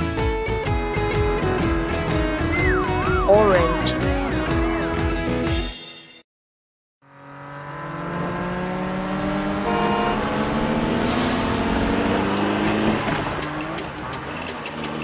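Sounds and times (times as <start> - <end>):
cartoon car engine revving: 7.0 - 15.0
brief hiss: 10.9 - 11.7.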